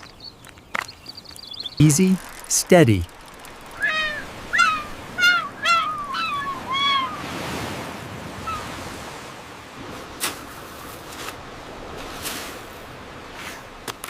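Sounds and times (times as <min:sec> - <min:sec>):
faint clicks: 0:00.0 - 0:05.0
cartoon animal calls: 0:03.8 - 0:07.3.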